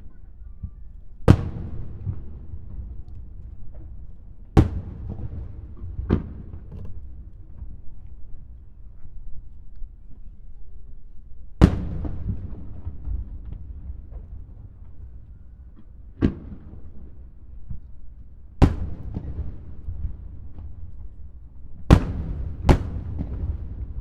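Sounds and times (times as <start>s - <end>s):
firework shells booming: 21.9s - 24.0s.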